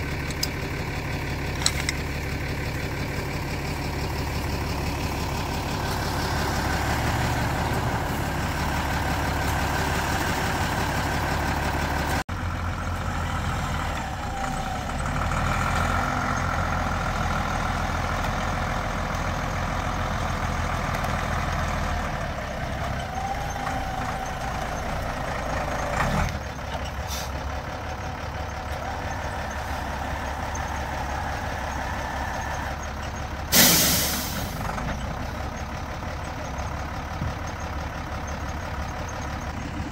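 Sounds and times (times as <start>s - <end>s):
vehicle engine rumbling: 0.0s - 39.9s
short loud hiss: 33.5s - 34.6s.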